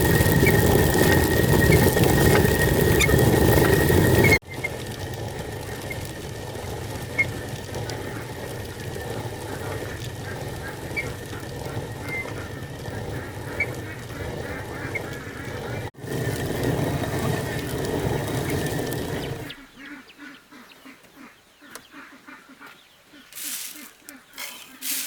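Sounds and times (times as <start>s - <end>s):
ducks quacking: 7.8s - 15.9s, 19.4s - 25.0s.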